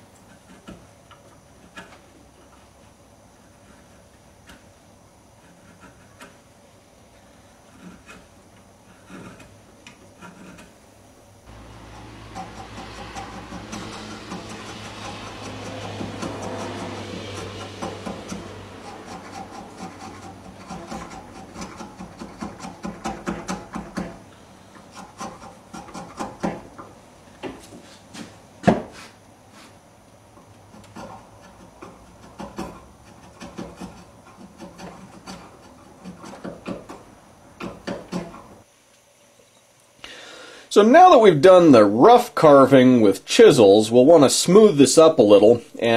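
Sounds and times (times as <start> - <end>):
chisel scraping wood: 0.2 - 6.5, 7.2 - 10.9, 11.5 - 26.8, 30.7 - 38.6.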